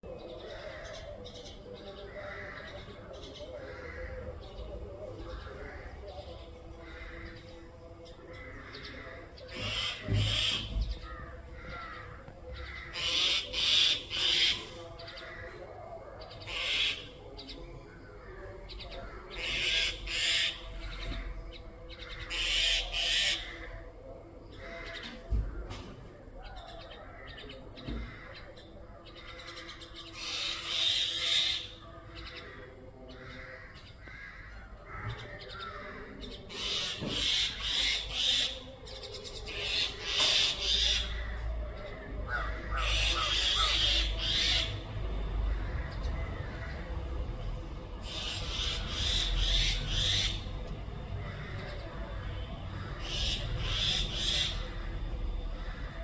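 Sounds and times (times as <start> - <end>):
mynah harsh alarm calls: 8.3 - 15.6, 16.2 - 17.2, 19.2 - 21.3, 22.0 - 23.8, 29.2 - 47.3, 47.9 - 56.0.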